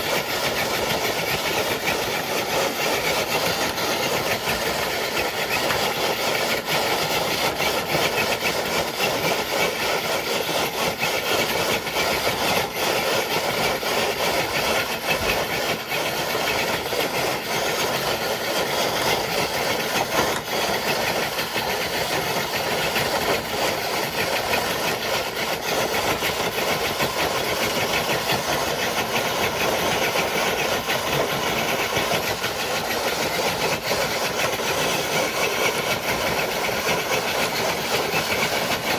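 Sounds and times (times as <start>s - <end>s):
toy truck electric motor and gears: 0.0s - 38.9s.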